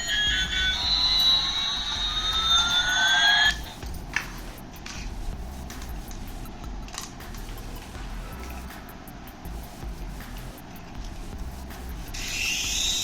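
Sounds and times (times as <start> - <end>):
toy gliding electronic tones: 0.0 - 3.8.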